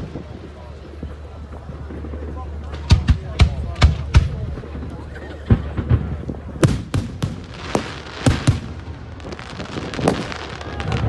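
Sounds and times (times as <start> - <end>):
fireworks bangs: 0.0 - 11.0
firework hiss: 5.6 - 11.0.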